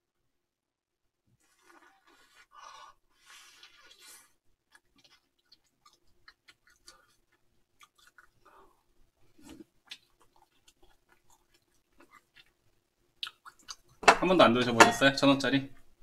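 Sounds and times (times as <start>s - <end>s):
person chewing food: 1.4s - 14.0s
wet mouth clicks: 13.2s - 13.9s.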